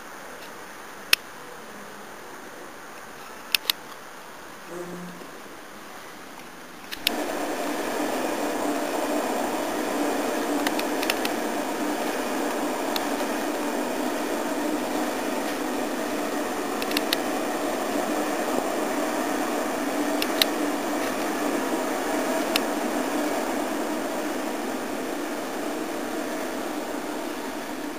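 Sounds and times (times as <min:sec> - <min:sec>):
sharp clicks: 0:03.5 - 0:03.9, 0:06.8 - 0:07.2, 0:16.8 - 0:17.2
train rumbling past: 0:07.0 - 0:27.9.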